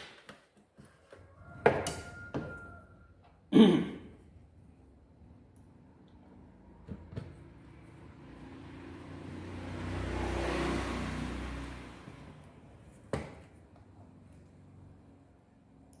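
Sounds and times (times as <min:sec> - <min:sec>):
motor vehicle passing by: 0:05.7 - 0:15.9.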